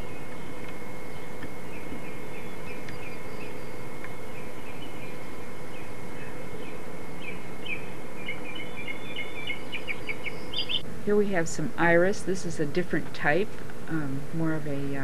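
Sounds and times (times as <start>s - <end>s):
small bird chirping: 0.0s - 10.8s
faint hum: 0.0s - 15.0s.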